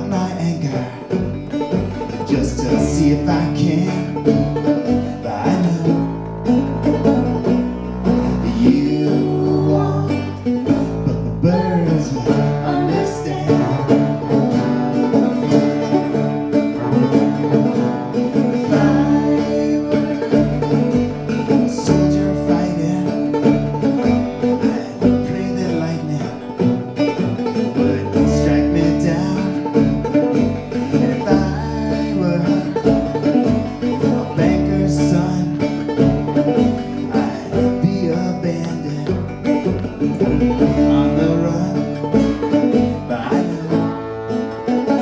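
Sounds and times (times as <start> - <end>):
plucked strings: 0.0 - 45.0
upright bass: 0.0 - 45.0.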